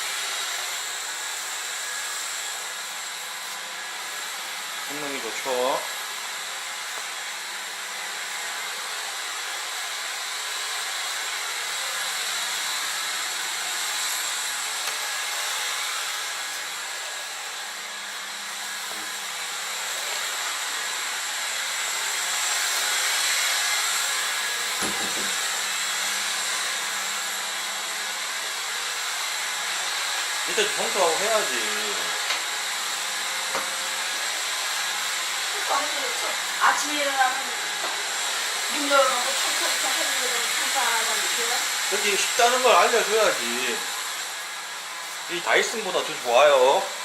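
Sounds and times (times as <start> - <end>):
vacuum cleaner motor whine: 0.0 - 47.0.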